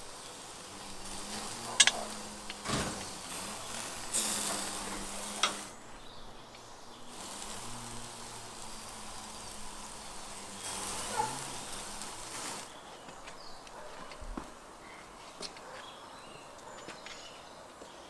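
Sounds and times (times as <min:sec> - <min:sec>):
sharp crackle: 0:00.0 - 0:12.8
meat sizzling over charcoal: 0:00.0 - 0:13.6.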